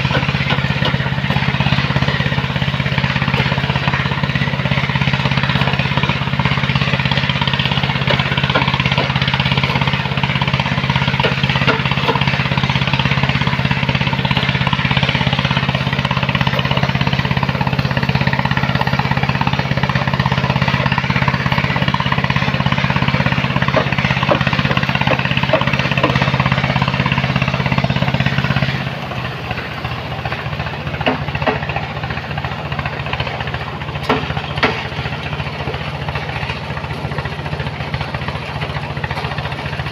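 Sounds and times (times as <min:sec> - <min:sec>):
large machine engine running: 0:00.0 - 0:39.9
sharp knocks: 0:11.1 - 0:12.4, 0:23.3 - 0:26.6, 0:31.0 - 0:31.9, 0:34.0 - 0:35.0.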